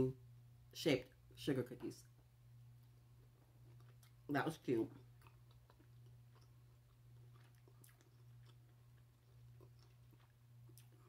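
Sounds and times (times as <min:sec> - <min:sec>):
steady low hum: 0:00.0 - 0:11.0
faint chewing: 0:02.8 - 0:04.3, 0:04.9 - 0:11.0.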